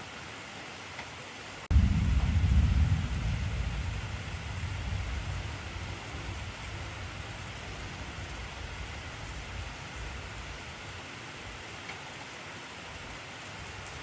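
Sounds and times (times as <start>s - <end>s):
heavy rain: 0.0s - 14.0s
thunder rumble: 1.7s - 11.6s.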